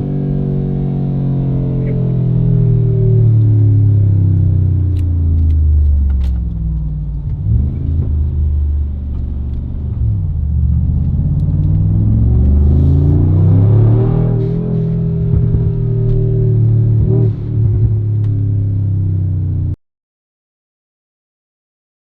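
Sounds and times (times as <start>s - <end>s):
car engine revving: 0.0s - 19.7s.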